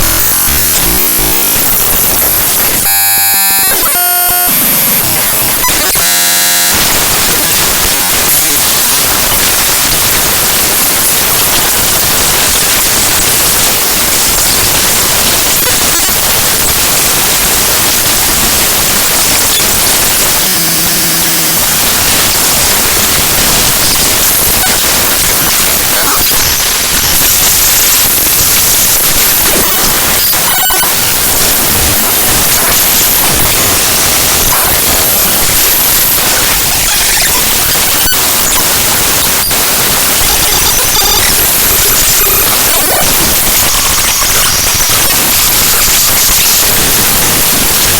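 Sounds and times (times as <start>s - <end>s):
short buzzing tone: 0.0s - 7.6s, 19.3s - 22.3s
harsh digital static: 0.0s - 47.9s.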